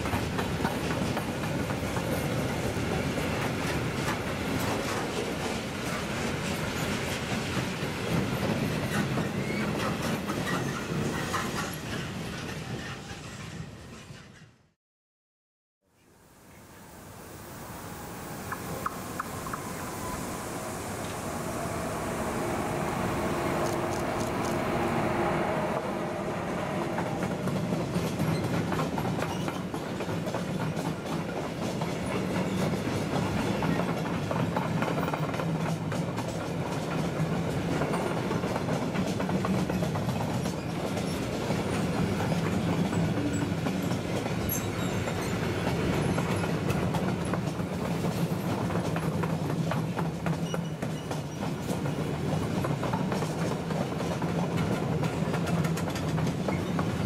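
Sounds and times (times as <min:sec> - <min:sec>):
train wheels rumbling on rails: 0:00.0 - 0:14.6, 0:18.0 - 0:57.0
wheels clickety-clack on rail joints: 0:00.0 - 0:14.6, 0:26.6 - 0:57.0.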